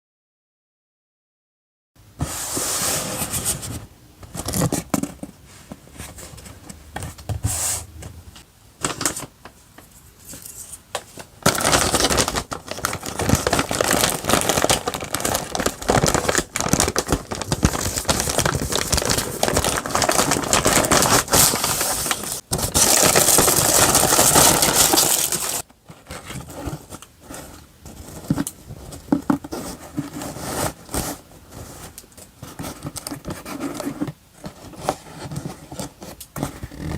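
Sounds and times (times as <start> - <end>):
packaging rustling: 11.1 - 36.9
packaging crinkling: 11.4 - 27.1.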